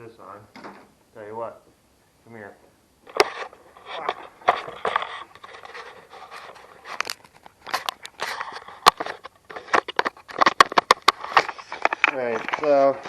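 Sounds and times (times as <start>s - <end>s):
scraping and rustling handling: 3.0s - 13.0s.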